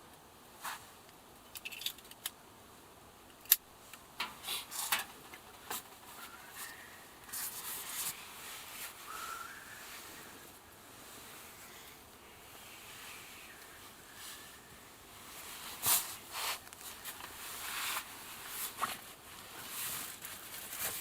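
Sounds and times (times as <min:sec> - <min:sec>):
objects clicking and scraping: 0:01.4 - 0:02.4, 0:03.3 - 0:08.1.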